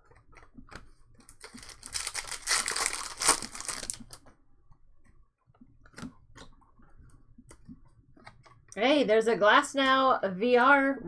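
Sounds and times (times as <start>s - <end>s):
wrapper tearing and crinkling: 1.3s - 4.2s.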